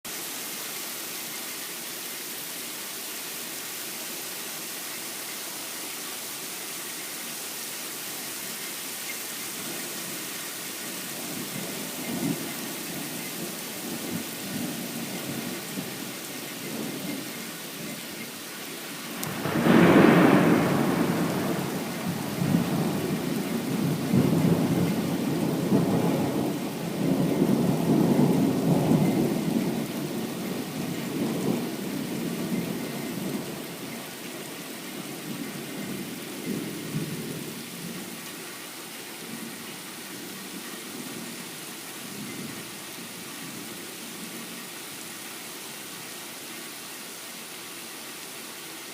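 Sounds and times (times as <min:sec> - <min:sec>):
rain hiss: 0:00.0 - 0:48.9
thunder clap and rumble: 0:19.0 - 0:33.8.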